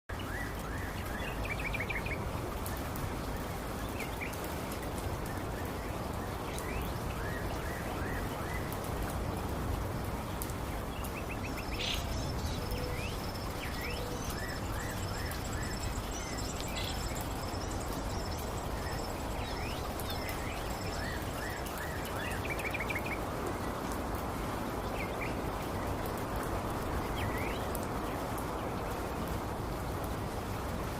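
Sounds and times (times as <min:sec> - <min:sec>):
birds chirping: 0:10.8 - 0:23.1.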